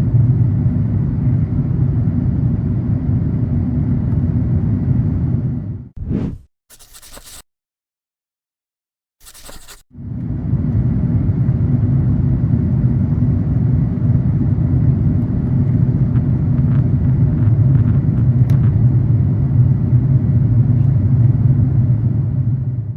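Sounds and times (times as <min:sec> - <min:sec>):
aircraft cabin rumble: 0:10.0 - 0:22.9.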